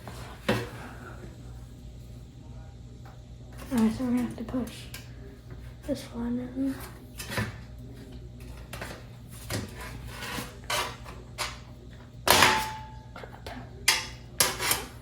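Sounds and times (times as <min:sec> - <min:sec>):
metal clank with ring: 0:12.3 - 0:13.1.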